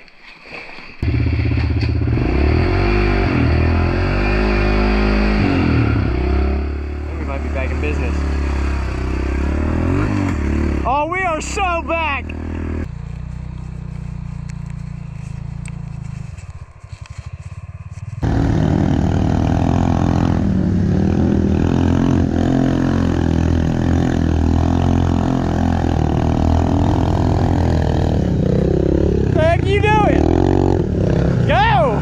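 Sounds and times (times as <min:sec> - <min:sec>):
loud engine running: 0:18.1 - 0:32.0.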